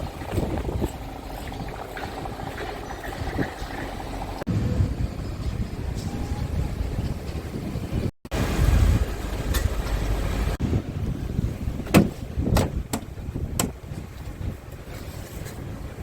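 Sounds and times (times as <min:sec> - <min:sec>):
truck diesel engine rumbling: 0:00.0 - 0:16.0
wind on microphone: 0:00.0 - 0:16.0
sharp knocks: 0:11.9 - 0:13.8.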